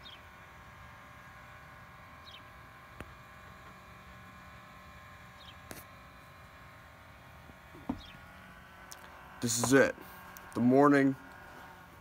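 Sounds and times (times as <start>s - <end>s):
small bird chirping: 0.0s - 0.2s, 2.2s - 2.5s, 5.4s - 5.7s, 7.9s - 8.3s.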